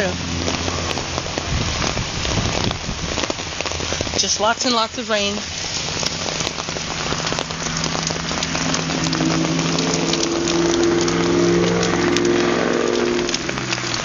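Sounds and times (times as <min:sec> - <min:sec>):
heavy rain pouring: 0:00.0 - 0:14.0
low steady hum: 0:06.0 - 0:13.7.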